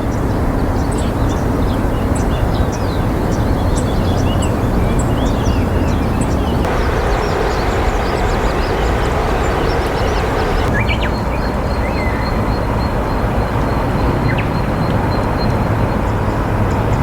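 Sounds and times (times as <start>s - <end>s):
low outdoor rumble: 6.6s - 10.7s
bird chirps: 6.7s - 10.7s.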